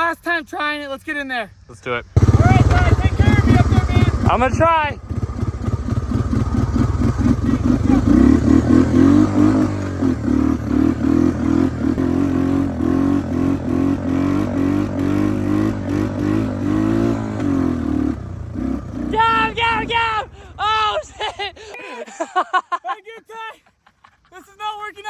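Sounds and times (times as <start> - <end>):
three-wheeler engine revving: 2.2 - 21.7.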